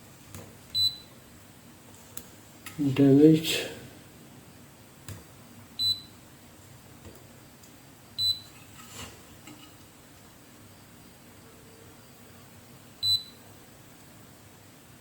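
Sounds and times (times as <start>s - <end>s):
multimeter beep: 0.7s - 1.1s, 5.8s - 6.2s, 8.2s - 8.5s, 13.0s - 13.4s.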